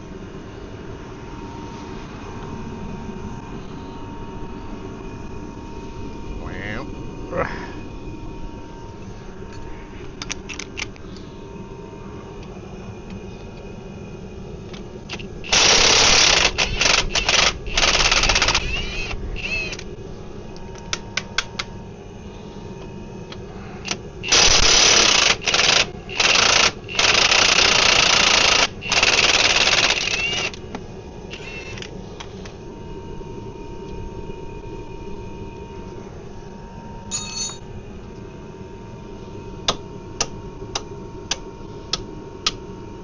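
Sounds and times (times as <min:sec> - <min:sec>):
impact wrench hammering: 0:37.1 - 0:37.6.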